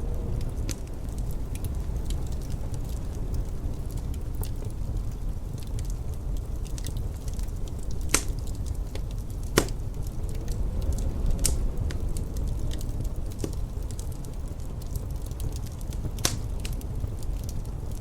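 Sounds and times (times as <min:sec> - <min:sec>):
low rumble of wind: 0:00.0 - 0:18.0
wood fire crackling: 0:00.0 - 0:18.0
sharp pops from fire: 0:05.6 - 0:18.0.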